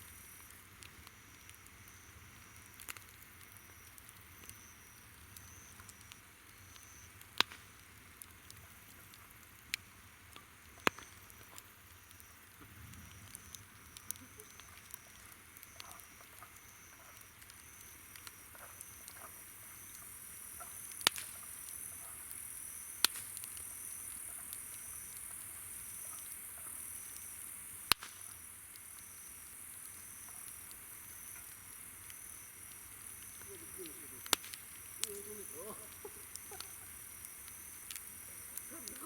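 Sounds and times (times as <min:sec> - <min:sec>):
loud fire pops: 0:00.0 - 0:09.9, 0:10.7 - 0:39.0
campfire crackling: 0:00.0 - 0:39.0
insects humming: 0:03.6 - 0:07.1, 0:11.9 - 0:39.0
insect chirping pulse: 0:12.1 - 0:39.0.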